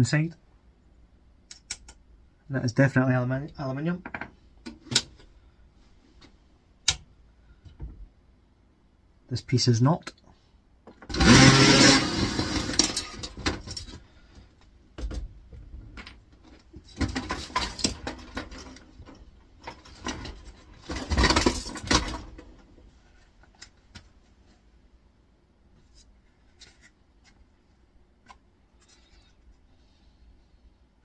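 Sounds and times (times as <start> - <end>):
metal parts clattering and rattling: 16.9 - 22.4.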